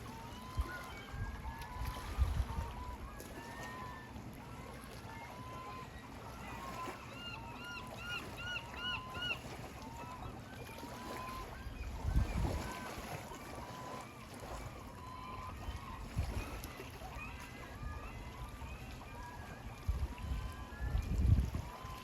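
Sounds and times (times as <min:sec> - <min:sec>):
waterbirds calling: 0:00.0 - 0:22.0.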